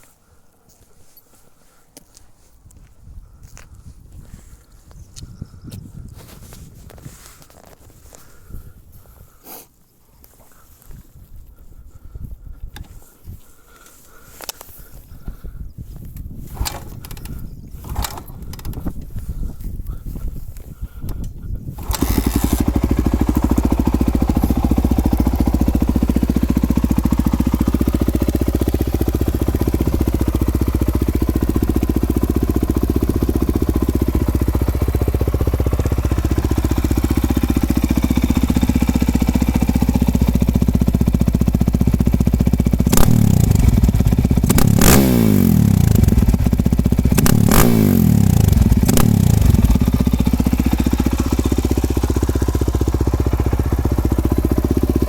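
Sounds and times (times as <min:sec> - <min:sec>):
motorcycle engine idling: 0:13.6 - 0:55.0
motorcycle engine revving: 0:16.4 - 0:18.8, 0:21.7 - 0:55.0.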